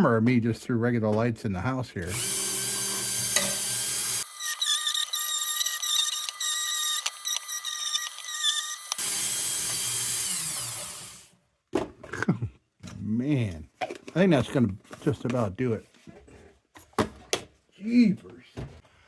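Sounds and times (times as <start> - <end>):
rotary power tool whining on metal: 2.1 - 11.3.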